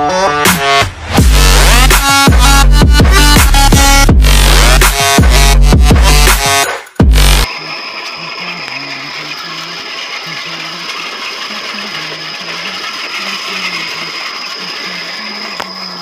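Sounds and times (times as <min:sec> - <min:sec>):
electronic music: 0:00.0 - 0:16.0
small electric motor whine: 0:07.5 - 0:16.0.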